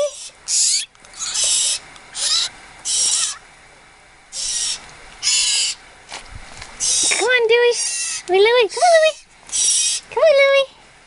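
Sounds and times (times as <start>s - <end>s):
young birds harsh begging calls: 0.0s - 3.5s, 4.3s - 5.9s, 6.8s - 10.2s.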